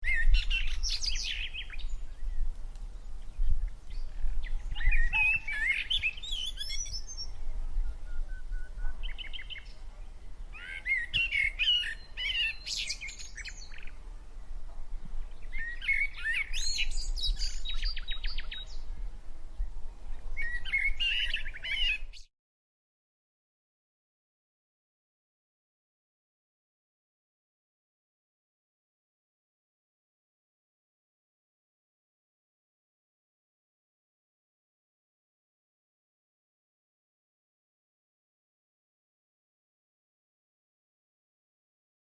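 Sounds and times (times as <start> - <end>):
songbirds warbling: 0.0 - 14.0, 14.9 - 22.3.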